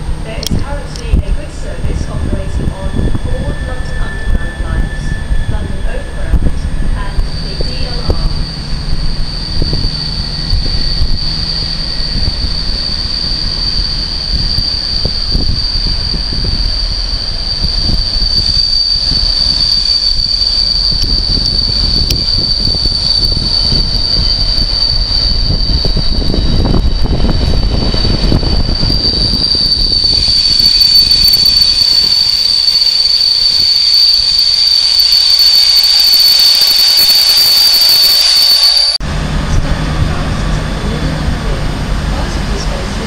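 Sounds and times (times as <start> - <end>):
high-pitched wheel squeal: 1.5 - 39.0
hiss: 7.4 - 39.0.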